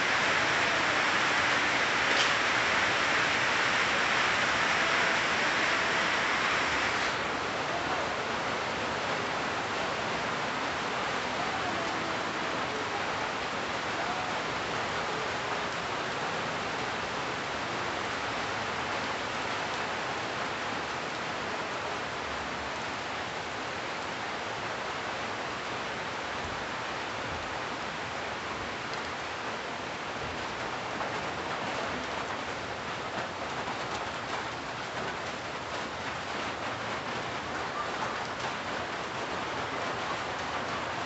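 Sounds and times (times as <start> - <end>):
rain falling on leaves: 0.0 - 41.0.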